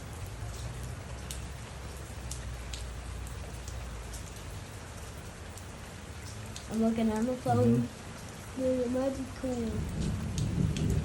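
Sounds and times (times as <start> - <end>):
heavy rain falling: 0.0 - 11.0
low thunder rumble: 9.6 - 11.0.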